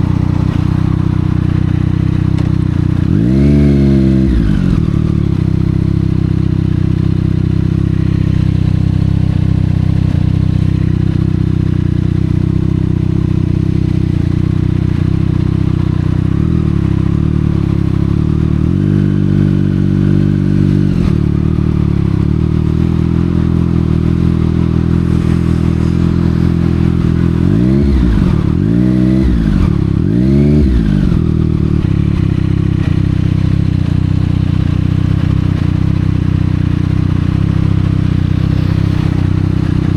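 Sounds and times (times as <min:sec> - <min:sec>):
motorcycle engine running: 0:00.0 - 0:39.9
motorcycle throttle blips: 0:00.0 - 0:39.9.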